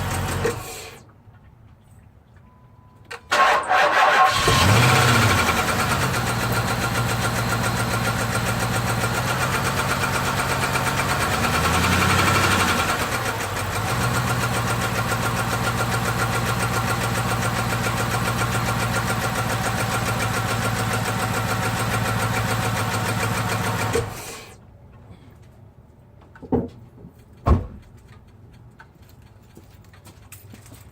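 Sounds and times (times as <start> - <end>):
car engine idling rough: 0.0 - 0.9, 4.3 - 24.5.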